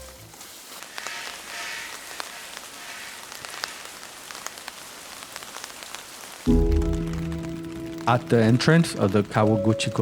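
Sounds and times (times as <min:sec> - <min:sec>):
rain falling: 0:00.0 - 0:10.0
raindrops ticking: 0:00.0 - 0:10.0
music with sustained notes: 0:06.5 - 0:10.0.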